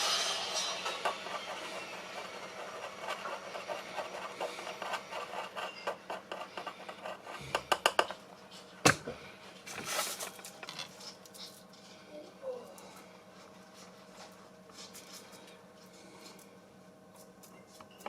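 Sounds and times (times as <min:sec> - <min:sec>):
rubbing and scraping: 0:00.0 - 0:07.8.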